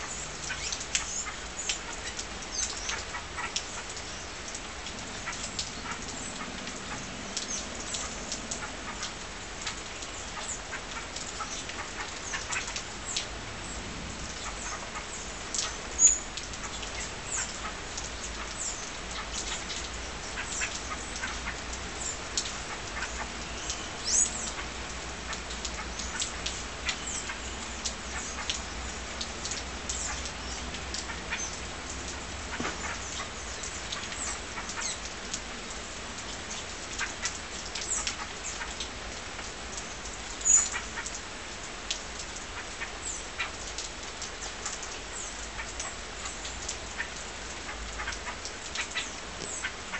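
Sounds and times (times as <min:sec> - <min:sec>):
small birds chirping: 0:00.0 - 0:35.3, 0:39.7 - 0:41.2, 0:44.4 - 0:49.9.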